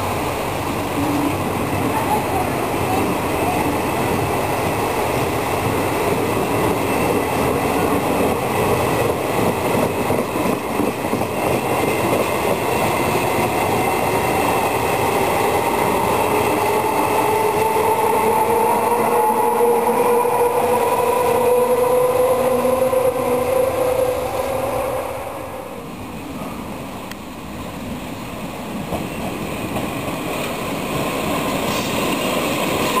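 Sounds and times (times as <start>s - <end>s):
electric locomotive whine: 0.0s - 33.0s
train wheels rumbling on rails: 0.0s - 33.0s.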